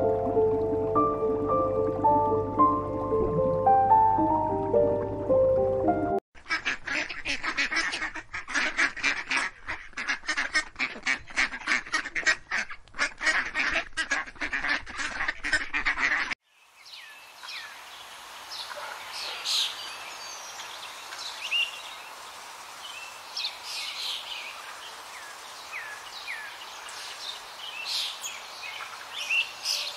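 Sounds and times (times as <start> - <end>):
faint steady hiss: 16.5 - 29.9
small birds chirping: 22.8 - 29.9.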